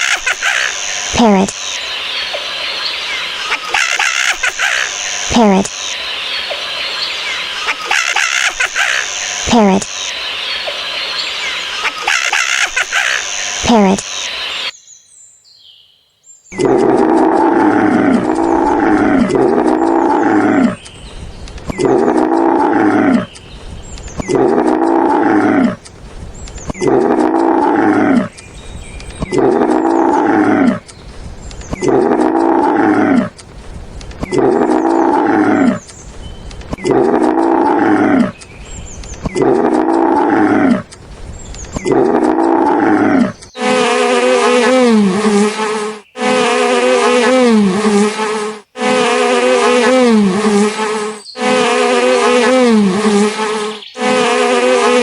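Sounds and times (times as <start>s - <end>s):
animal calling loudly: 0.0s - 14.7s, 16.6s - 20.9s, 21.7s - 23.4s, 24.2s - 25.8s, 26.7s - 28.4s, 29.2s - 30.9s, 31.7s - 33.4s, 34.2s - 35.9s, 36.7s - 38.4s, 39.2s - 41.0s, 41.8s - 48.2s
steady buzzing: 0.0s - 14.7s, 16.6s - 26.2s, 41.9s - 55.0s.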